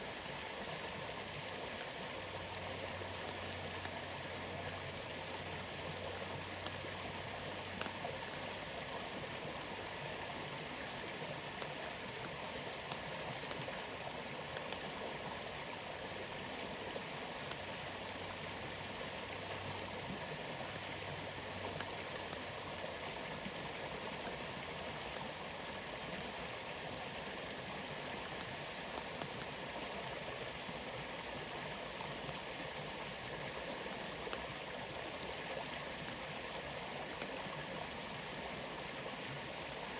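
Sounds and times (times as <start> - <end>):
faint ticks: 6.0 - 8.4, 11.5 - 15.0.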